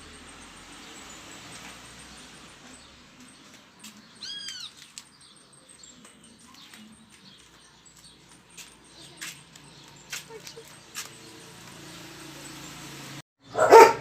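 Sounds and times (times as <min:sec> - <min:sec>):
small pet crying: 0:04.2 - 0:04.7.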